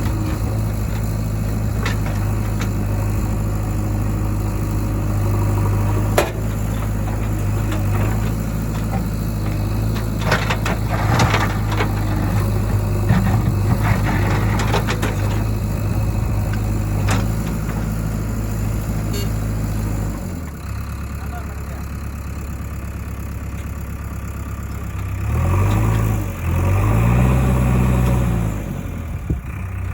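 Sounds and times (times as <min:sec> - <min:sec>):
clatter: 0:00.0 - 0:03.3, 0:05.9 - 0:18.0
heavy diesel engine running: 0:00.0 - 0:29.9.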